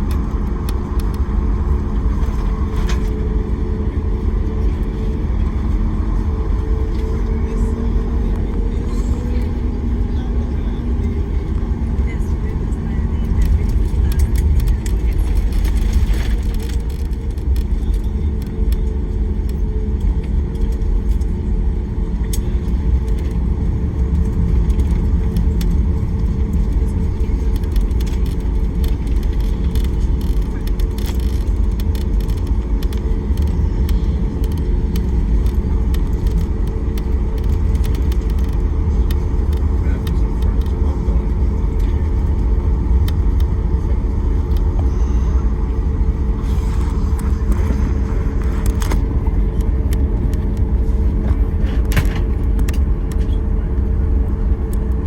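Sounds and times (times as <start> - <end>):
faint clicks and rattles: 0.0 - 21.5, 22.1 - 55.0
jet engine rumble in cabin: 0.0 - 55.0.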